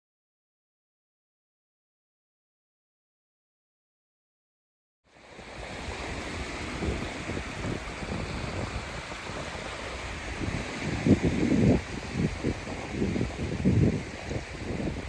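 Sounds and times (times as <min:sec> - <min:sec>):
ocean surf rushing: 0:05.2 - 0:15.0
wind on microphone: 0:05.3 - 0:15.0.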